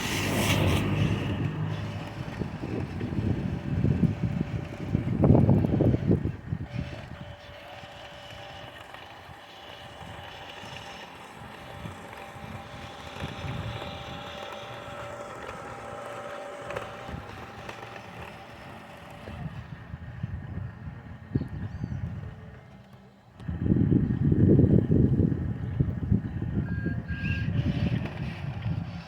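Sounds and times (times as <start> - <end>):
low rumble: 0.0 - 6.2
electric motor and gearbox whining: 0.0 - 29.0.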